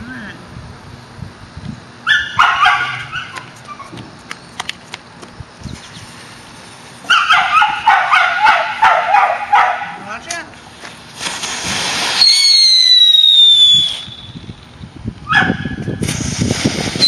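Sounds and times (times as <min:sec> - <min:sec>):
dog yipping and whining: 0:02.0 - 0:04.0, 0:07.1 - 0:09.3
sharp pops: 0:11.1 - 0:14.2.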